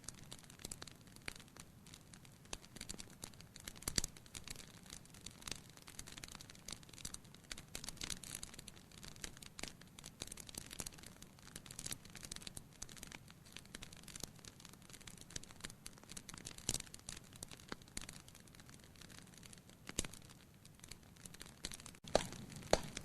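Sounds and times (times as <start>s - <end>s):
wood fire crackling: 0.0s - 23.0s
sharp pop: 22.0s - 23.0s.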